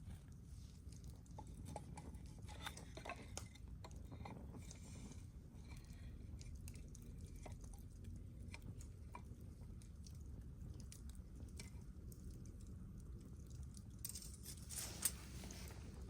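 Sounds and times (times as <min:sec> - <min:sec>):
low steady rumble: 0:03.6 - 0:16.0.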